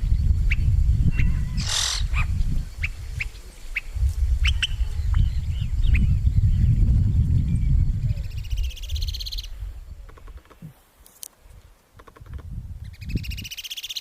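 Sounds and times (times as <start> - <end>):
birds chirping: 0.0 - 10.9
bird squawk: 1.1 - 2.4.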